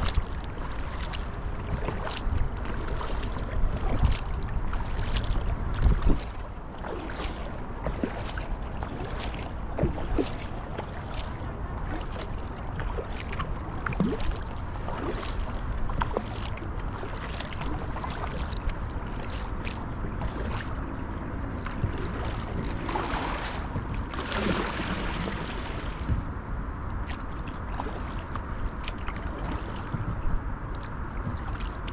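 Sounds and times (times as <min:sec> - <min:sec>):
water splashing and dripping: 0:00.0 - 0:26.2, 0:26.9 - 0:31.9
kayak paddle dipping into water: 0:00.0 - 0:31.9
wind rumble on microphone: 0:00.0 - 0:31.9.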